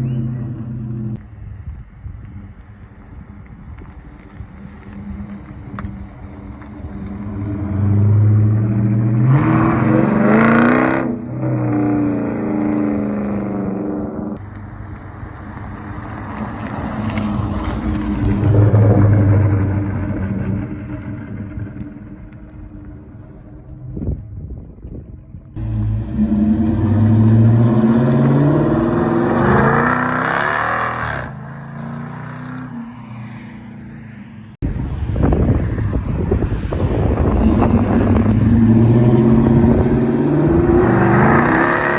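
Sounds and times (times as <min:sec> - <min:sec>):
car exhaust accelerating hard: 0:13.0 - 0:31.3, 0:34.6 - 0:41.9.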